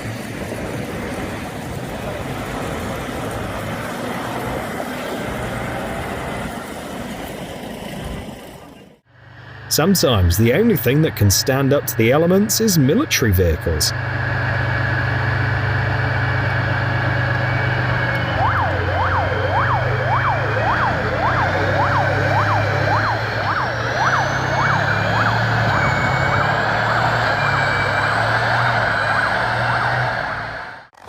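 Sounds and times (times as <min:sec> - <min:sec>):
vehicle engine running: 0:00.0 - 0:31.0
siren wailing: 0:09.1 - 0:31.0.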